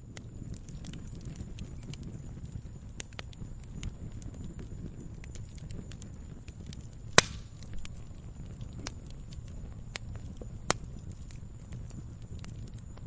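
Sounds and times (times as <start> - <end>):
wood fire crackling: 0.0 - 13.0
sharp loud fire pop: 7.2 - 7.6.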